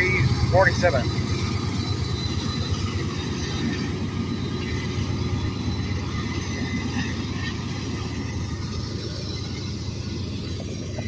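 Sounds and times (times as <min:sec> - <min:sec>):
freight train rumbling on rails: 0:00.0 - 0:11.0.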